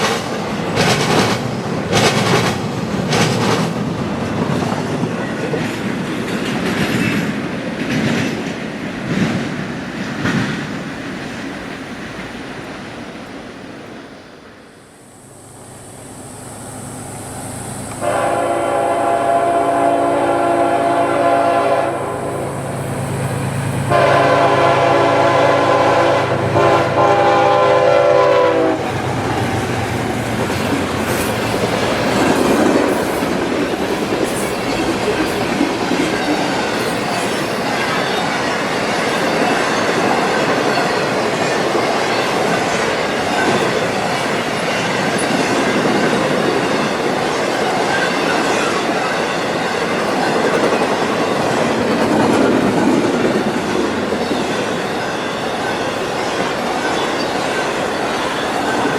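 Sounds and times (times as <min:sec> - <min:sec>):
train wheels clattering on rails: 0:00.0 - 0:12.9, 0:26.5 - 0:58.9
train horn blasts: 0:17.9 - 0:23.0, 0:23.8 - 0:29.0.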